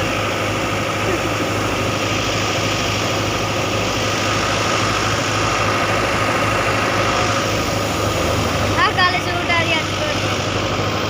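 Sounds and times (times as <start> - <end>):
engine humming steadily: 0.0 - 11.0.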